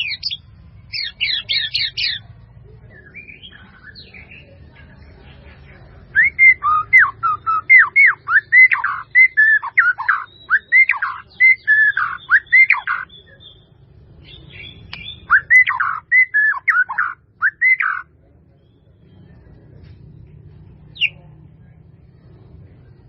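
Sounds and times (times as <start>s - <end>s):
bird singing whistled phrases: 0.0s - 2.2s, 6.1s - 18.0s.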